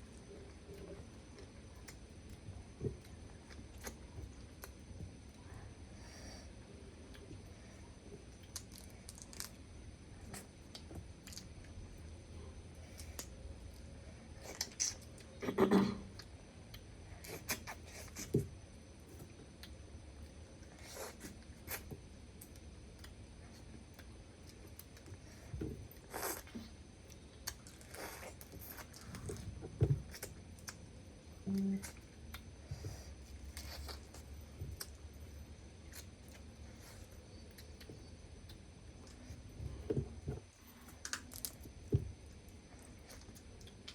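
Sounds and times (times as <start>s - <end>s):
crab shell cracking and crunching: 8.4s - 9.6s, 40.9s - 41.8s
chewing: 19.1s - 30.9s, 31.5s - 43.9s.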